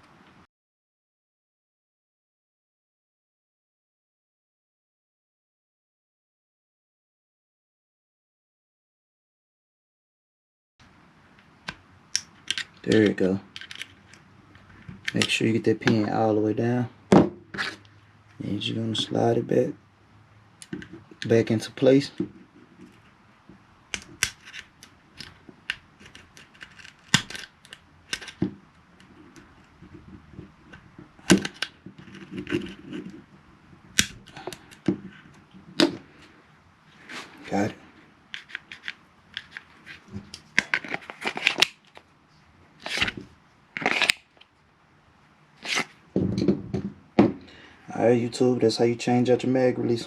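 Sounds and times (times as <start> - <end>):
pistol clacking: 11.7 - 14.2
pistol snapping: 11.7 - 14.2, 23.9 - 28.4, 34.0 - 34.9
pistol clicking: 12.1 - 14.2
pistol slide clicking: 13.6 - 14.2.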